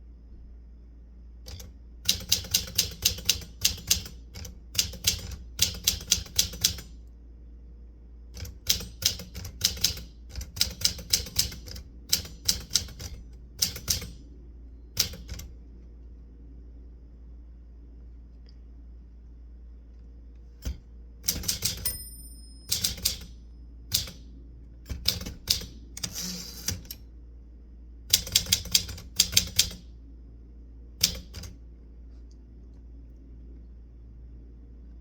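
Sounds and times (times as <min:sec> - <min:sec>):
typewriter keys striking: 0:01.5 - 0:06.9, 0:08.4 - 0:14.2, 0:15.0 - 0:15.5, 0:20.6 - 0:22.0, 0:22.7 - 0:23.3, 0:23.9 - 0:24.2, 0:24.9 - 0:27.0, 0:28.1 - 0:29.8, 0:31.0 - 0:31.5.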